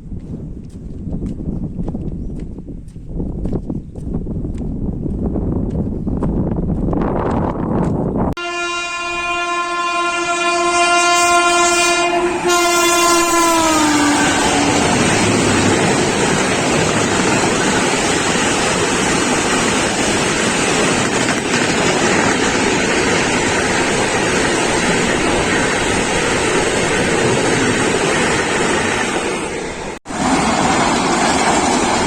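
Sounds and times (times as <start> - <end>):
wind on microphone: 0.0 - 8.4, 12.0 - 29.5
train horn: 8.4 - 15.5
train passing at speed: 8.4 - 32.0.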